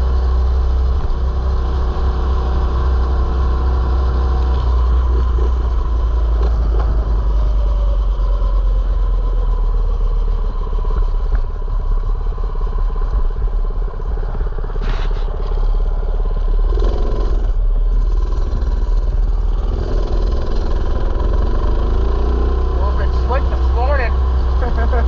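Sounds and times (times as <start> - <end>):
mini bike engine running: 16.5 - 25.0.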